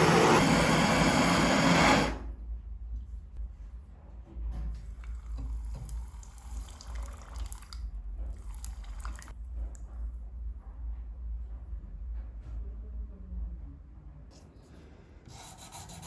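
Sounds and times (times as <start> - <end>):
tap water running and splashing: 4.8 - 9.3.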